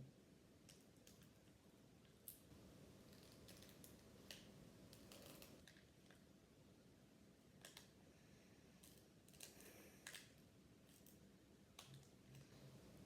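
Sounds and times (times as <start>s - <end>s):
trading cards clicking and scraping: 3.1s - 5.6s.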